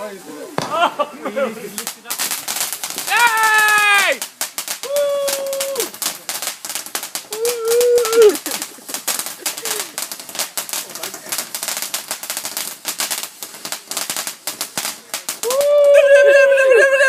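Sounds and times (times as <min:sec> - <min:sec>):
fireworks crackling: 0:00.0 - 0:17.0
person cheering: 0:03.1 - 0:04.2, 0:04.8 - 0:06.0, 0:07.3 - 0:08.5, 0:15.4 - 0:17.0.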